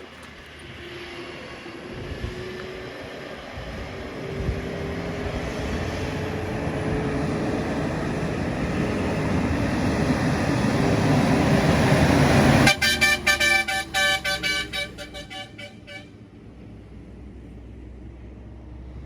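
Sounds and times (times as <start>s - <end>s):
heavy truck approaching: 0.0s - 19.0s
truck horn: 12.5s - 16.2s.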